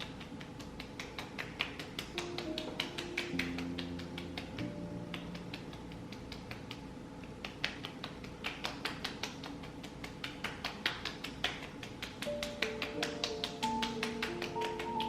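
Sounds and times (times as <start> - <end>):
fingertips tapping skin: 0.0 - 15.0.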